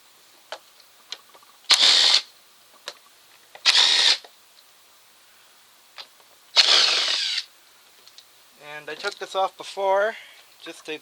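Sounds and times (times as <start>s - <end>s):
power drill running: 1.7s - 2.3s, 3.6s - 4.2s, 6.6s - 7.5s.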